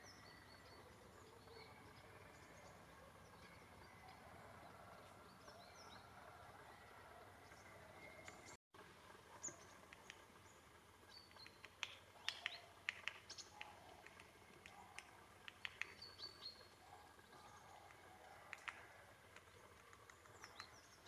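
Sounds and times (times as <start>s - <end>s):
small birds chirping: 0.0s - 8.6s, 9.3s - 21.0s
quiet outdoor hush: 0.0s - 21.0s.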